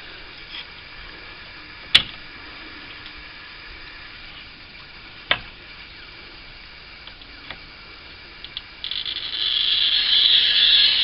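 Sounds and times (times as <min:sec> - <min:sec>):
glass cutter scoring glass: 0:08.9 - 0:11.0.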